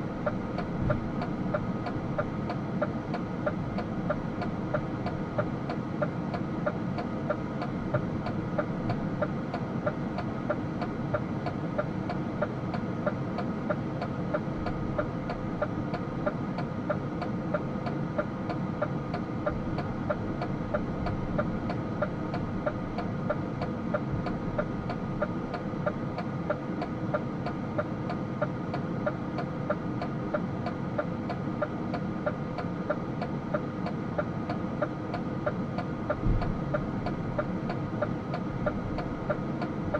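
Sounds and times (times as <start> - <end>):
regular light ticking: 0.2 - 39.9.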